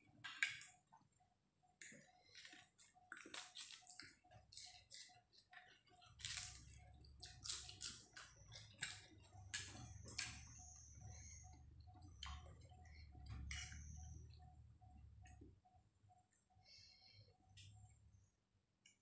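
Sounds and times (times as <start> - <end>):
chewing and mouth smacking: 1.8 - 10.6
low hum: 6.2 - 18.7.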